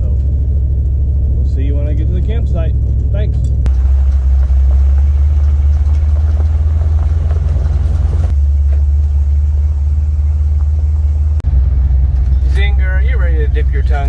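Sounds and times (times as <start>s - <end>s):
truck engine and road noise: 0.0s - 14.0s.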